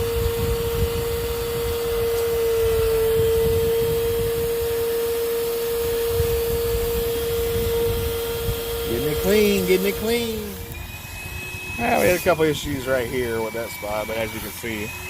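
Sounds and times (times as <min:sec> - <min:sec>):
spot shampooer suction whine: 0:00.0 - 0:15.0.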